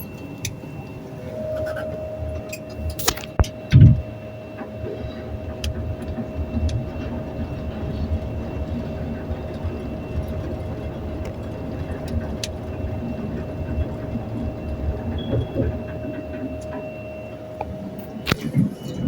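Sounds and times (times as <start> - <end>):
elevator car rumbling: 0.0 - 19.0
faint high whine: 0.0 - 19.0.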